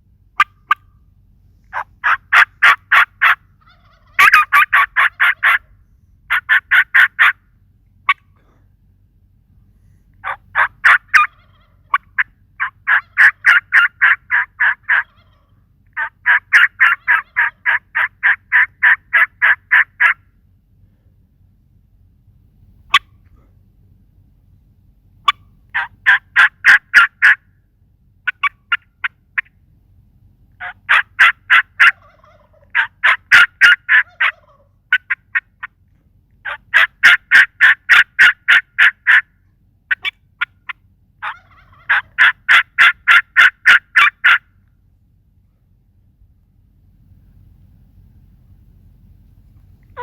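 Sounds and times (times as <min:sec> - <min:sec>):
turkey calls: 0:00.3 - 0:00.9, 0:01.6 - 0:07.4, 0:08.0 - 0:08.6, 0:09.9 - 0:20.3, 0:22.9 - 0:23.5, 0:25.2 - 0:27.5, 0:28.2 - 0:29.6, 0:30.5 - 0:44.7, 0:49.4 - 0:50.0.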